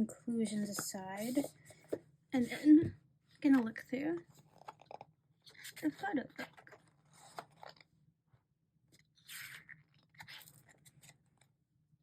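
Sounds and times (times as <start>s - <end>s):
paper pages rustling: 4.3s - 7.9s.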